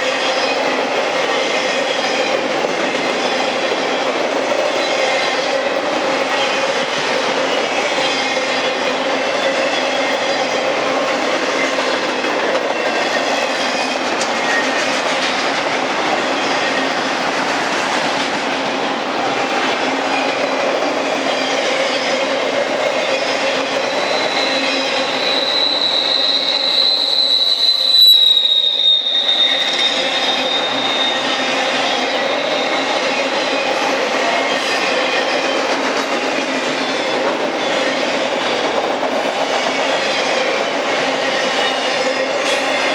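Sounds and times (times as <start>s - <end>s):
freight train cars rolling past: 0.0s - 42.9s
high-pitched wheel squeal: 23.0s - 33.9s.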